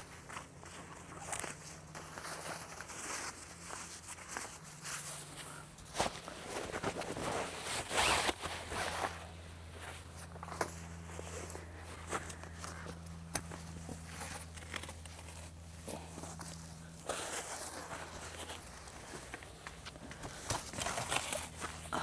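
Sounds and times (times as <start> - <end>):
rustling: 1.2 - 12.8.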